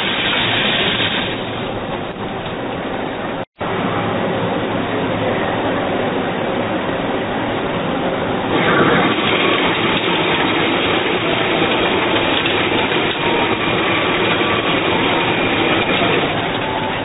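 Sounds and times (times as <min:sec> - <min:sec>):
machine tool running: 0:00.0 - 0:01.7, 0:08.3 - 0:17.0.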